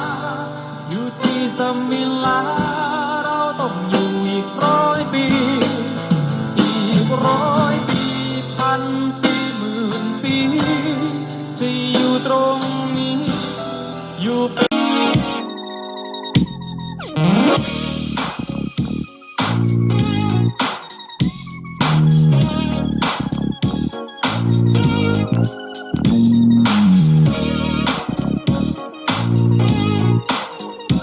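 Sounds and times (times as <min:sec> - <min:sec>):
song through small speaker: 0:00.0 - 0:31.0
wavering melodic lead: 0:14.7 - 0:31.0
steady bass: 0:16.4 - 0:20.6, 0:21.2 - 0:30.3.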